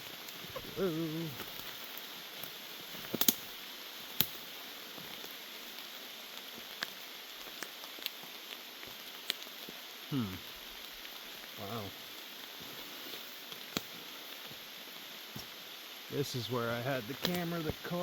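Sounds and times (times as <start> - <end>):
heavy rain hissing: 0.0 - 18.0
raindrops tapping near microphone: 0.0 - 18.0
man's falling vocal sound: 0.6 - 1.4, 10.1 - 10.4.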